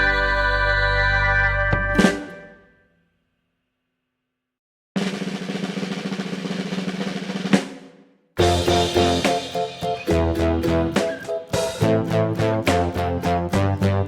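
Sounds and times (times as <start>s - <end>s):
background music: 0.0s - 2.7s, 8.4s - 14.0s
drum roll: 1.8s - 2.6s, 5.0s - 14.0s
cymbal crash: 8.4s - 12.0s.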